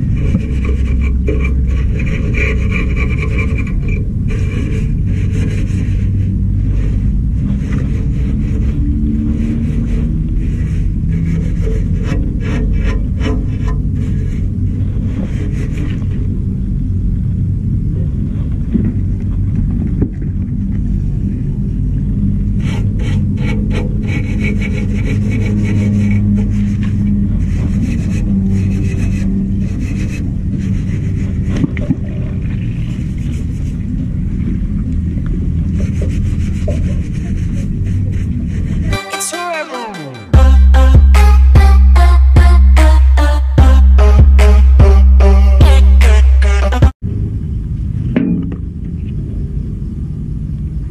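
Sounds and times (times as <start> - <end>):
hand scrubbing wet metal frame: 0.0 - 16.5, 22.2 - 39.0
steady low rumble: 0.0 - 39.0, 40.4 - 50.9.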